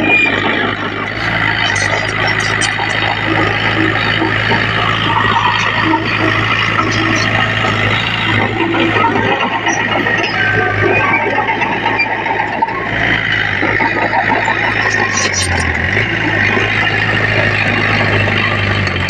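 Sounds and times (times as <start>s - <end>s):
diesel machinery engine drone: 0.0s - 19.0s
metallic clatter: 1.6s - 10.2s.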